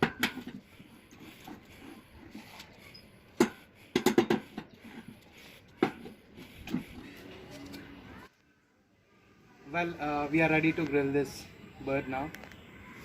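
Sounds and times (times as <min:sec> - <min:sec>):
objects knocking and clattering: 0:00.0 - 0:00.6, 0:03.4 - 0:05.1.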